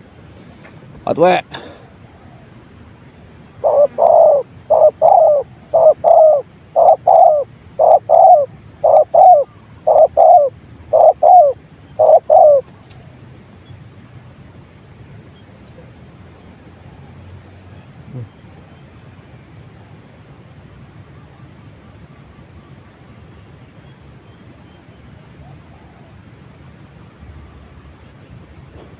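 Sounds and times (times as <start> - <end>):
dove cooing: 3.5 - 12.7.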